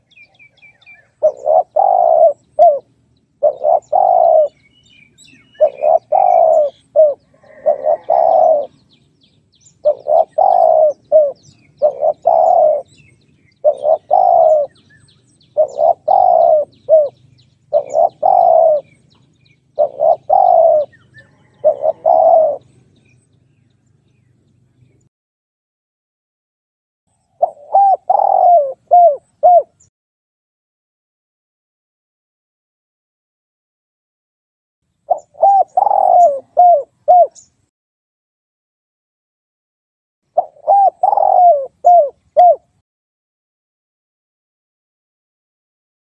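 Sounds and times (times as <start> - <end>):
faint small birds chirping: 0.0 - 25.1, 34.9 - 37.7
dove cooing: 0.1 - 9.0, 9.7 - 15.0, 15.6 - 22.9, 27.4 - 29.9, 35.1 - 37.5, 40.4 - 42.8.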